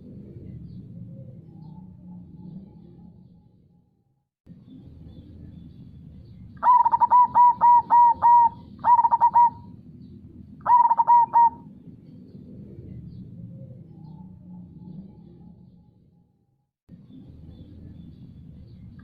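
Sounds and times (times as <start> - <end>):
low steady river-like background: 0.0 - 19.0
dove cooing song: 6.6 - 15.8.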